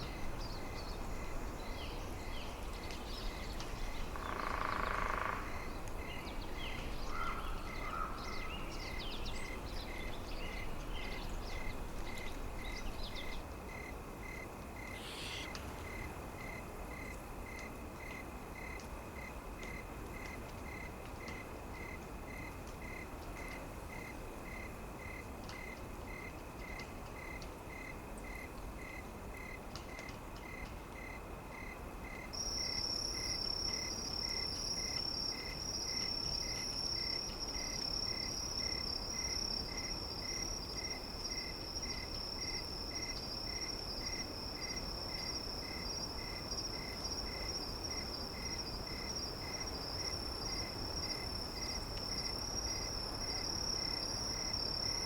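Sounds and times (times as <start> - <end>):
insect chirps: 0.0 - 55.0
high insect trill: 11.5 - 17.1.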